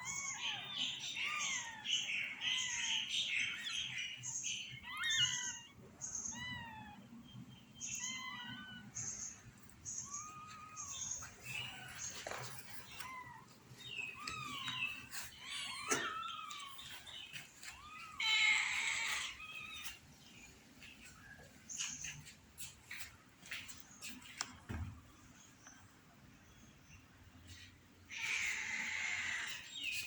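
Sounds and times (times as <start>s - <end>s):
newborn kittens mewing: 0.0s - 3.7s, 4.6s - 7.1s, 7.8s - 20.0s, 28.1s - 30.0s.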